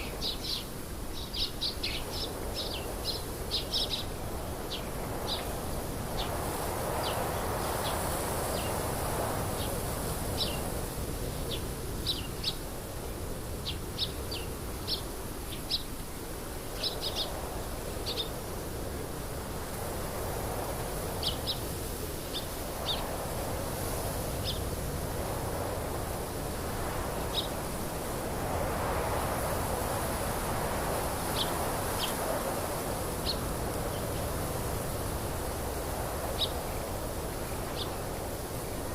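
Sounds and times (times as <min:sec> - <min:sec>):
small birds chirping: 0:00.0 - 0:06.4, 0:11.5 - 0:12.6, 0:16.8 - 0:18.4, 0:27.2 - 0:27.6, 0:30.2 - 0:32.4, 0:36.3 - 0:38.1.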